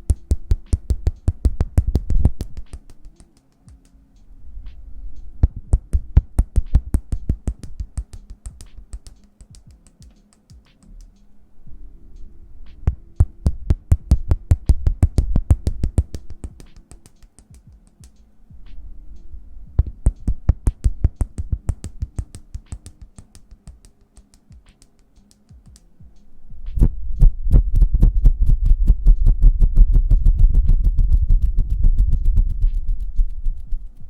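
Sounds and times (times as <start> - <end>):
hands tapping rapidly: 0.0 - 4.0, 5.4 - 11.0, 12.9 - 18.2, 19.8 - 25.9.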